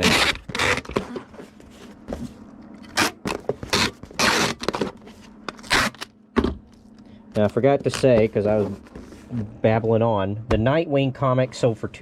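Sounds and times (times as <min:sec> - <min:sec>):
scraping rustling handling noises: 0:07.4 - 0:09.4.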